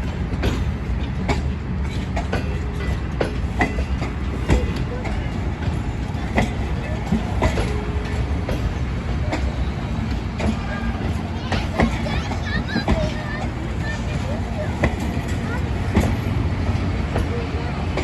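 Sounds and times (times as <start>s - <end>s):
train rumbling: 0.0s - 18.0s
wheels clicking over rails: 0.0s - 18.0s.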